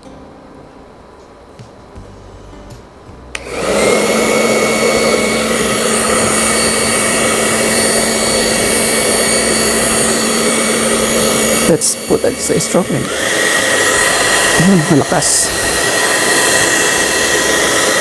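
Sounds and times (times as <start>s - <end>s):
hair dryer switch click: 3.3s - 3.8s, 13.0s - 13.3s
hair dryer running: 3.3s - 18.0s.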